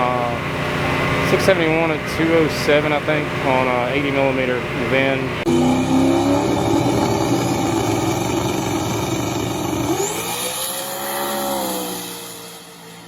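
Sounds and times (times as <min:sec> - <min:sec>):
race car engine at high revs: 0:00.0 - 0:13.0
steady pitched note: 0:05.4 - 0:13.0.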